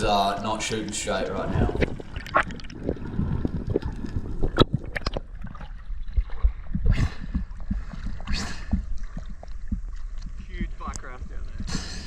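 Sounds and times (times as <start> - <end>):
rushes of bubbles: 0.5 - 10.8
water gurgling underwater: 0.8 - 12.0
clicks and crackles: 3.6 - 5.3.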